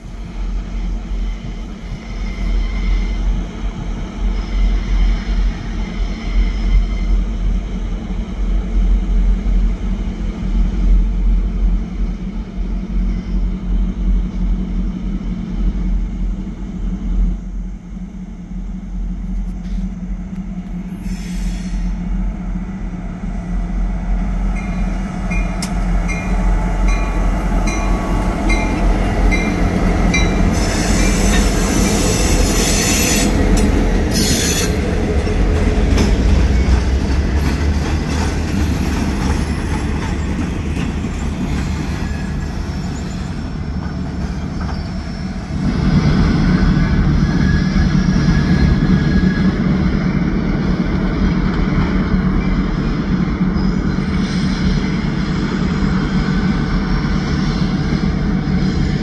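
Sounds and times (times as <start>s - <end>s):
diesel locomotive engine rumble: 0.0s - 59.0s
train wheels squealing: 0.3s - 7.4s, 12.7s - 13.8s, 20.7s - 22.0s, 24.5s - 50.7s, 52.0s - 59.0s.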